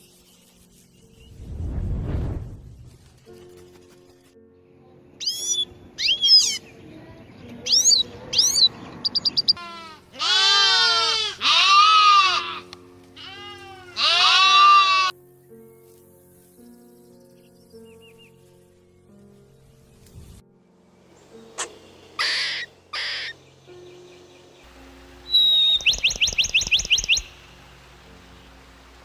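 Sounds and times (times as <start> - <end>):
background music: 0.0 - 9.0, 9.6 - 29.0
animal bleating: 9.6 - 15.1.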